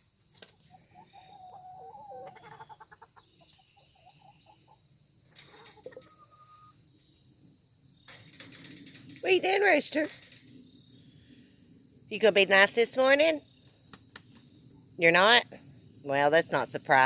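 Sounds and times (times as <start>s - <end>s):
chickens clucking: 0.3s - 7.4s.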